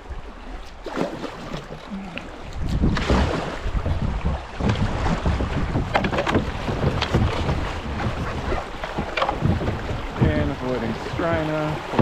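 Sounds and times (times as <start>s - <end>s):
water rushing and splashing: 0.0s - 12.0s
sharp splashes: 0.7s - 3.8s
wind buffeting microphone: 1.9s - 12.0s.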